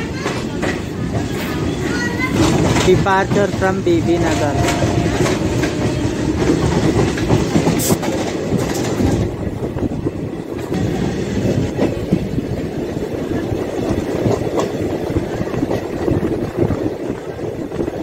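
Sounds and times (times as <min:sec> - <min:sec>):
wheels clattering over rail joints: 0:00.0 - 0:09.6
train running noise: 0:00.0 - 0:18.0.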